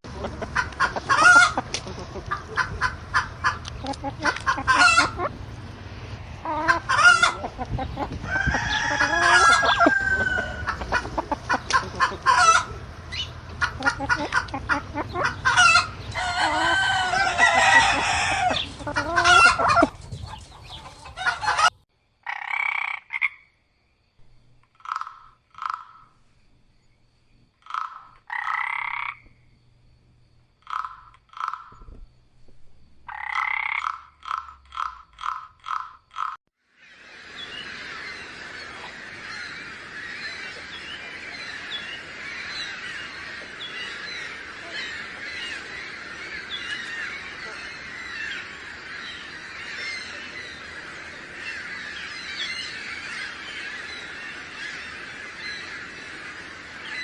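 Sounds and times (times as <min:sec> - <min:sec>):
chickens clucking: 0:00.0 - 0:21.8
short croaking calls: 0:00.1 - 0:20.0, 0:20.8 - 0:23.6, 0:24.2 - 0:26.4, 0:27.5 - 0:29.6, 0:30.6 - 0:36.4
rooster crowing: 0:08.2 - 0:11.3, 0:15.2 - 0:19.9.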